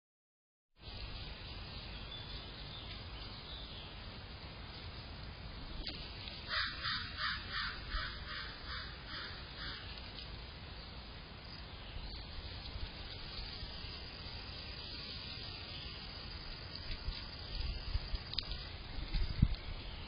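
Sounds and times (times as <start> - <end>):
bird harsh calls: 6.4 - 10.1.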